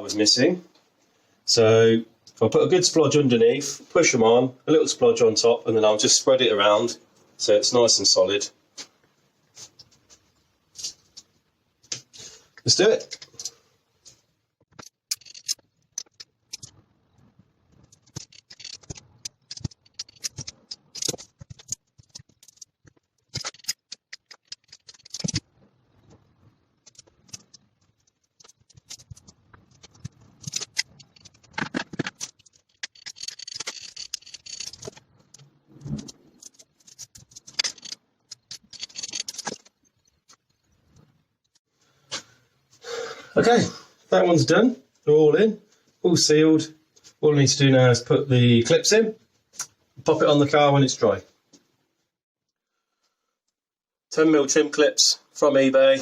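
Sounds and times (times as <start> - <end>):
hands clicking and scraping: 17.8 - 25.5, 26.8 - 40.4.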